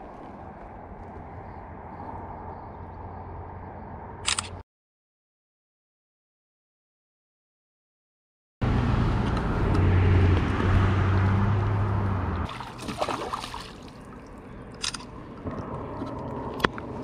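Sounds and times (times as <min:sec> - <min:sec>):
boat motor humming: 0:08.6 - 0:17.0
water noise: 0:10.6 - 0:17.0
water trickling: 0:12.5 - 0:16.4.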